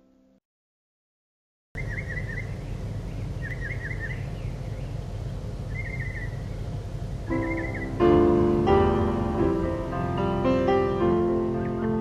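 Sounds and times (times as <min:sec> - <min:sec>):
songbird singing trilled phrase: 0:01.8 - 0:05.0, 0:05.7 - 0:06.6, 0:07.3 - 0:08.0
low outdoor rumble: 0:01.8 - 0:12.0.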